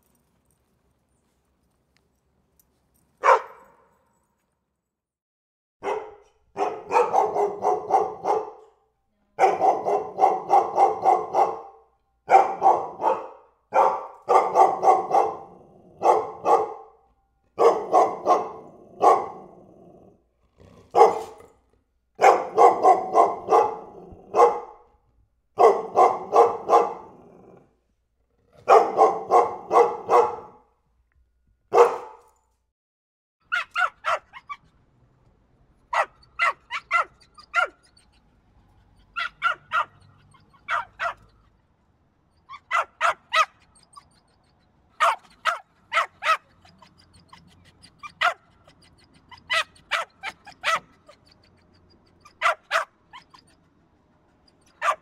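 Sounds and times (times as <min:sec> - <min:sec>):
dog barking: 0:03.2 - 0:03.9, 0:05.8 - 0:17.0, 0:17.6 - 0:19.6, 0:20.9 - 0:21.5, 0:22.2 - 0:24.9, 0:25.6 - 0:27.4, 0:28.6 - 0:30.7, 0:31.7 - 0:32.4, 0:33.5 - 0:34.6, 0:35.9 - 0:38.0, 0:39.1 - 0:41.3, 0:42.5 - 0:44.1, 0:45.0 - 0:47.3, 0:48.0 - 0:48.4, 0:49.3 - 0:51.4, 0:52.2 - 0:53.5, 0:54.6 - 0:55.0.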